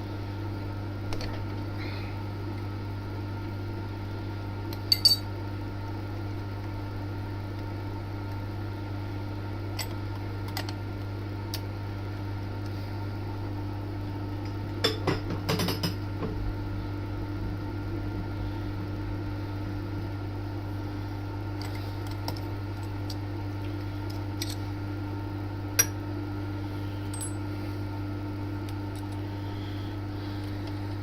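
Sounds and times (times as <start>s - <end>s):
low machine hum: 0.0s - 31.0s
metal tools clinking: 4.9s - 5.2s, 27.1s - 27.4s.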